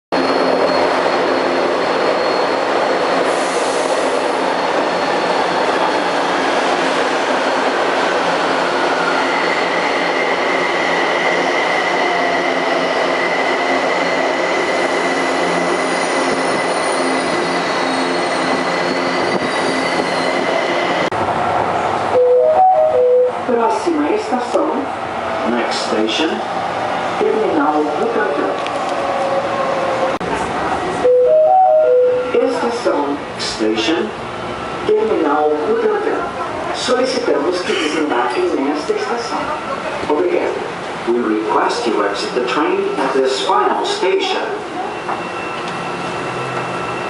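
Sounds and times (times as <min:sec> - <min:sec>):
metro train rumble: 0:00.1 - 0:47.0.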